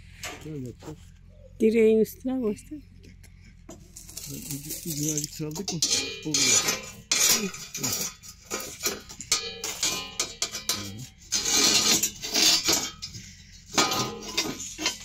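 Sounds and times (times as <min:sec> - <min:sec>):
metal clinking and rattling: 0:03.7 - 0:15.0
metal scraping rushes: 0:03.8 - 0:15.0.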